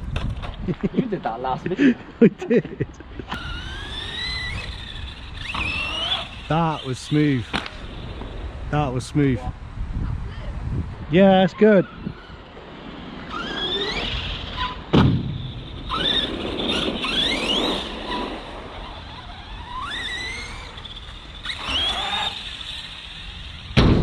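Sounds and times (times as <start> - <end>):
electric motor whining: 3.2 - 9.3, 11.8 - 23.8
toy truck hitting ground: 3.3 - 6.4, 13.3 - 18.6, 19.3 - 23.0.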